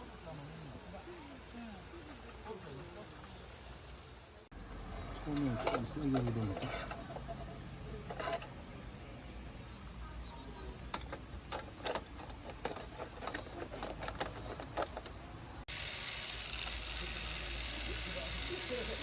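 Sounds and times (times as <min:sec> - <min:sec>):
high chirring hum: 0:04.5 - 0:19.0.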